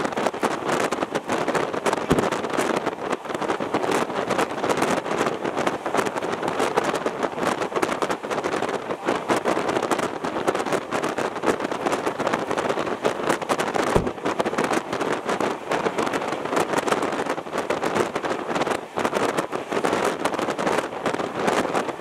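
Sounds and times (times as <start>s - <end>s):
train running clatter: 0.0s - 22.0s
wind buffeting microphone: 0.0s - 22.0s
low thump: 13.9s - 14.2s.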